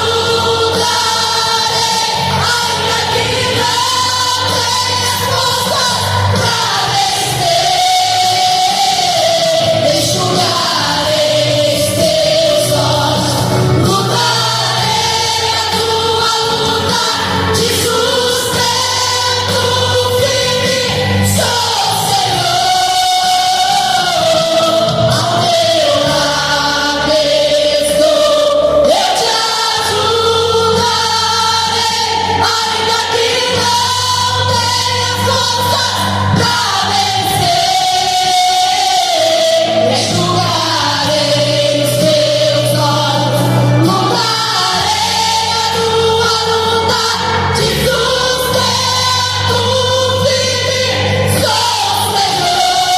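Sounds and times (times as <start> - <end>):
voices singing together: 0.0 - 52.9.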